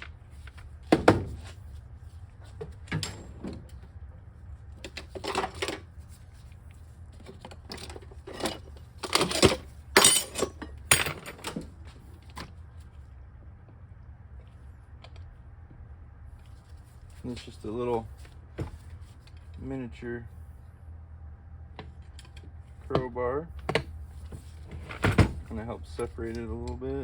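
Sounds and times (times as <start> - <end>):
metal tools clinking and clattering: 7.6 - 11.6.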